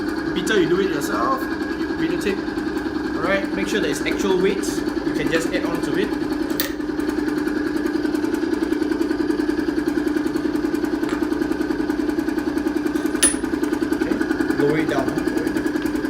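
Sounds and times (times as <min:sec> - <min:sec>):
sharp metallic click: 0:06.6 - 0:06.8, 0:13.0 - 0:13.6.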